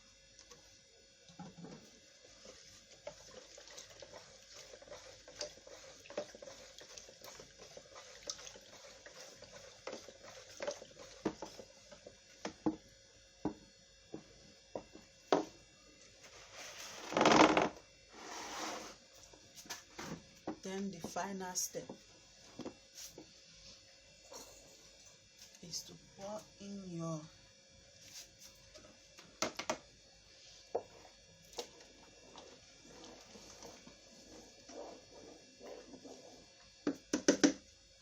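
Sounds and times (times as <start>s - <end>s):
liquid poured and mixed in bowl: 1.3s - 12.6s, 30.6s - 37.6s.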